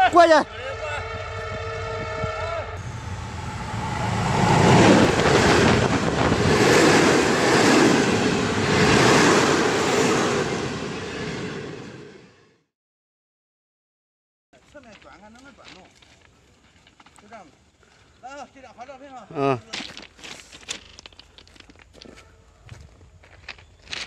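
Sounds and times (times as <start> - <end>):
train horn: 0.0 - 5.8
train wheels clattering on rails: 3.8 - 10.8.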